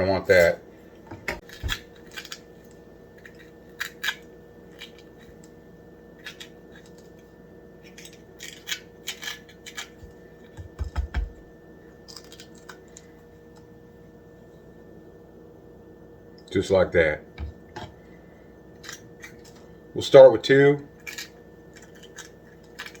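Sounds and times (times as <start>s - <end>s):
peppers crackling and snapping: 1.4s - 5.6s, 6.2s - 11.3s, 12.0s - 13.6s, 18.8s - 19.6s, 21.0s - 23.0s.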